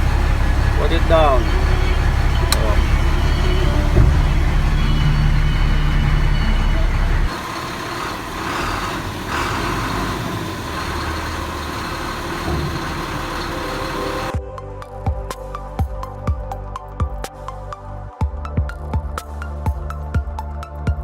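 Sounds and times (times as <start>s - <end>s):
diesel truck engine droning: 0.0s - 14.4s.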